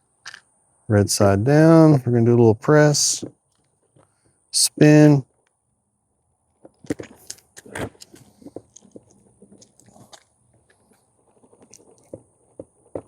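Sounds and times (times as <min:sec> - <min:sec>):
skateboard wheel clicks and knocks: 0:11.4 - 0:13.0.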